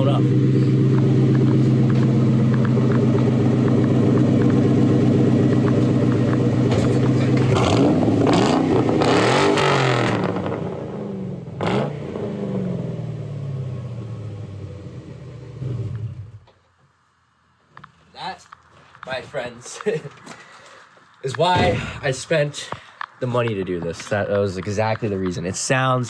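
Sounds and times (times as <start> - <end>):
car engine idling and revving: 0.0 - 16.5
sharp crack: 21.2 - 24.7.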